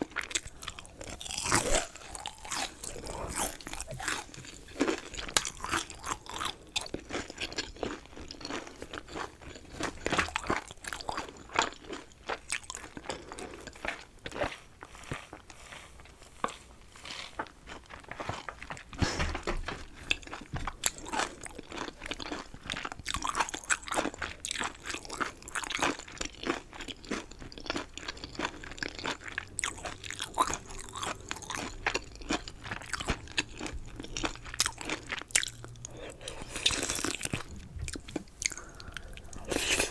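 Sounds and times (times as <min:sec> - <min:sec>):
chewing crunchy chicken: 0:00.0 - 0:39.9
wet mouth sounds: 0:32.5 - 0:39.9.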